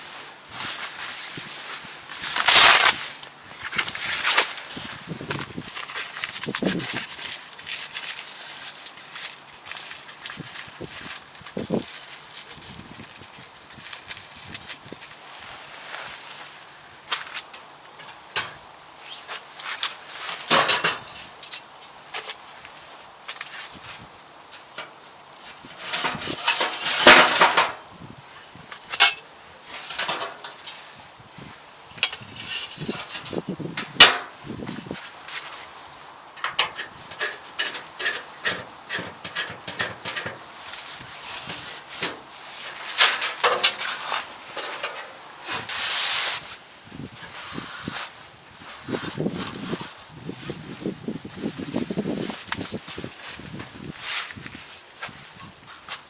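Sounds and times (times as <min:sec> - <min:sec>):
hard objects clattering: 0:41.4 - 0:45.2.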